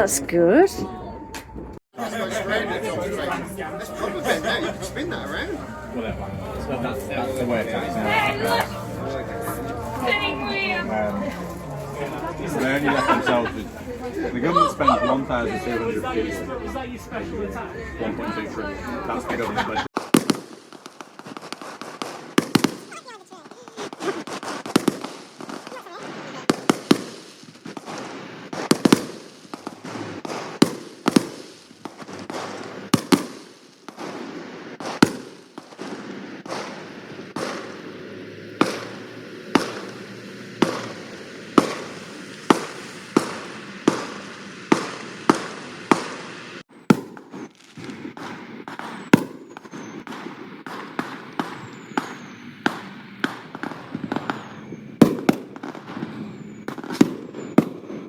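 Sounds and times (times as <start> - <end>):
fireworks bangs: 1.2 - 16.6, 19.7 - 58.0
crackling hiss: 20.0 - 57.9
faint falling whistles: 48.7 - 50.3, 51.0 - 55.0, 55.9 - 58.0.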